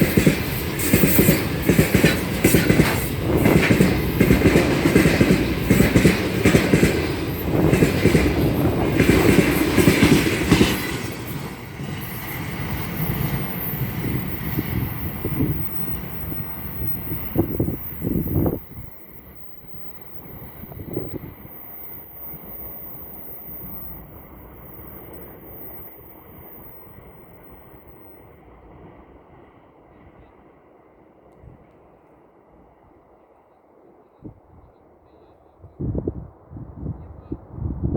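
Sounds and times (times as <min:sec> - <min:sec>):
train wheels clattering on rails: 0:00.0 - 0:28.3.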